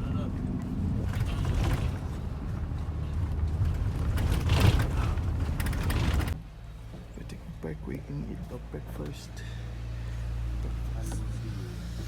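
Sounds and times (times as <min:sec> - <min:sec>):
bus engine and road rumble: 0:00.0 - 0:12.0
rattling surge: 0:03.5 - 0:06.4.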